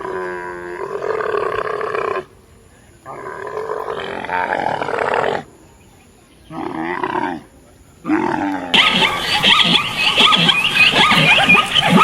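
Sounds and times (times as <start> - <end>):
large animal deep wavering calls: 8.1 - 12.0.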